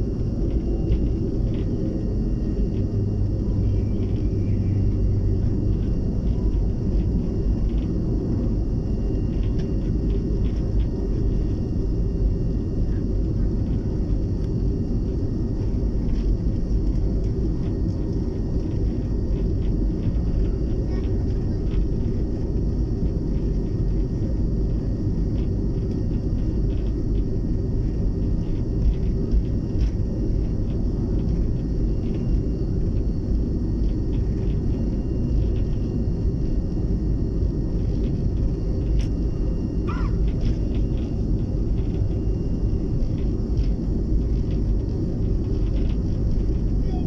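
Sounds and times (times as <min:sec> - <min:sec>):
faint engine whine: 0:00.0 - 0:47.0
jet engines rumbling: 0:00.0 - 0:47.0
small scattered clicks: 0:37.8 - 0:39.2.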